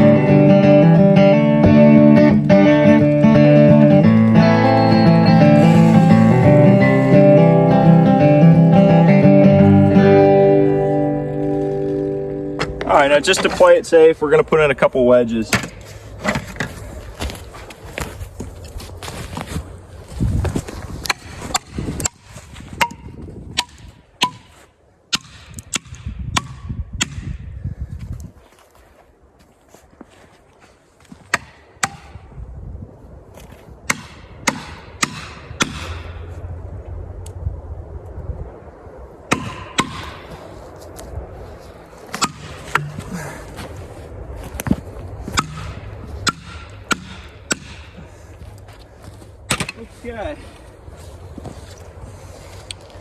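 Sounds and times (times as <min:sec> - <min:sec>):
blows driving wedges into wood: 0:15.5 - 0:16.7, 0:21.0 - 0:27.5, 0:31.1 - 0:32.3, 0:33.9 - 0:36.2, 0:39.3 - 0:40.5, 0:42.1 - 0:43.6, 0:44.6 - 0:48.4, 0:49.5 - 0:49.8
wedges struck with ringing: 0:33.9 - 0:36.2, 0:39.3 - 0:40.3, 0:42.1 - 0:43.1, 0:45.3 - 0:48.1.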